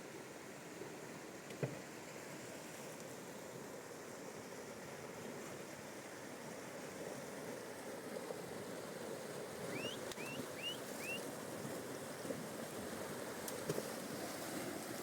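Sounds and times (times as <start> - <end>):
fast-flowing river rushing: 5.7 - 15.0
bird calling: 9.7 - 11.2.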